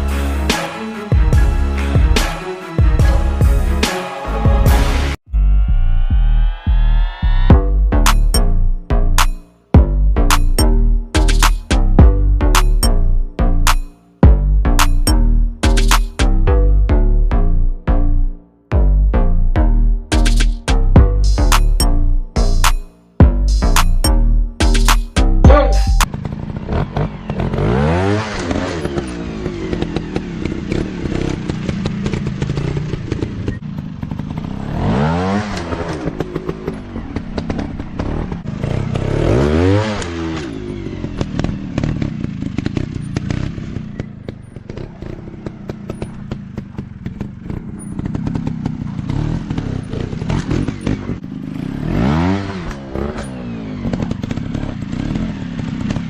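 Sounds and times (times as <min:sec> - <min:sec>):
dirt bike engines revving: 0:25.2 - 0:56.0.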